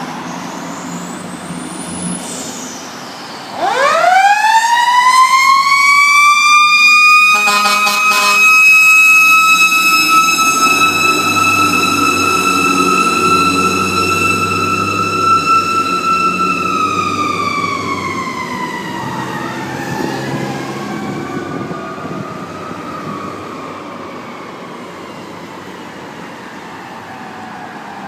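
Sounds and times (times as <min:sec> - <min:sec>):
siren tone sweeping up: 0:03.4 - 0:23.8
mechanical siren winding down: 0:03.5 - 0:24.0.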